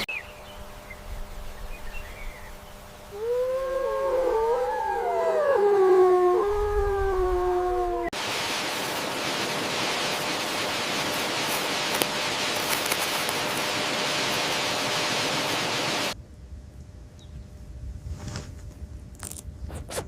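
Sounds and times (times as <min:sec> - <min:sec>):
steady rushing hiss: 0:00.0 - 0:16.2
animal howl: 0:03.1 - 0:08.2.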